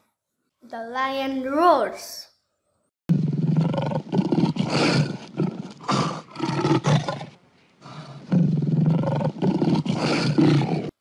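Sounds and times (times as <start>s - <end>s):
lion roaring: 3.1s - 11.0s.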